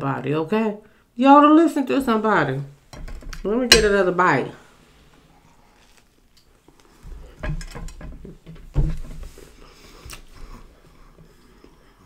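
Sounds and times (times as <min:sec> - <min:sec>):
chewing sandwich: 0:05.3 - 0:07.0.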